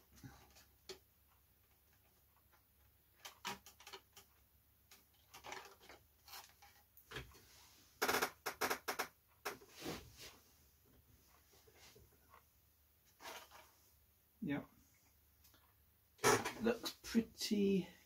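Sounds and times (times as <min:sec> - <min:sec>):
hands handling model parts: 0:00.1 - 0:07.5.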